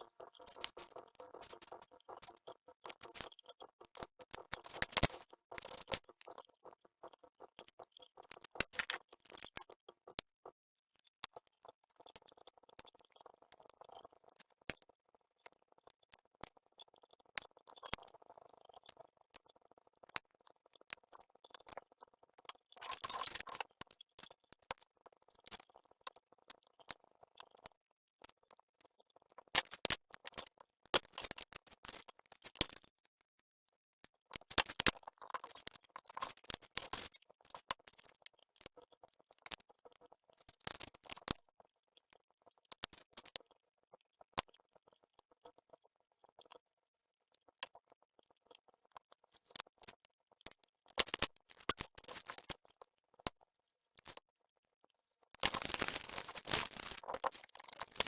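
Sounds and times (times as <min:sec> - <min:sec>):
sharp clicks and snips: 0:03.9 - 0:06.1, 0:55.4 - 0:58.0
rustling: 0:55.4 - 0:58.0.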